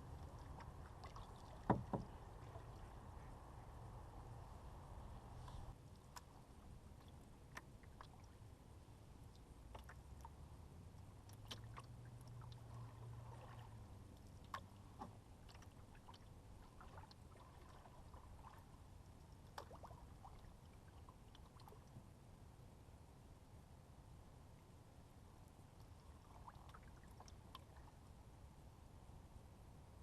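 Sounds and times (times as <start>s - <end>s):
water dripping off paddle: 0.0s - 2.9s, 11.2s - 18.6s, 19.4s - 20.5s
low steady rumble: 0.0s - 30.0s
paddle knocks: 1.6s - 2.3s.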